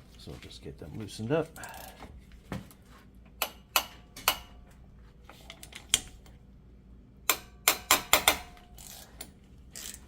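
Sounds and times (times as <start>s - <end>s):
ratchet wrench clicking: 7.7s - 10.0s.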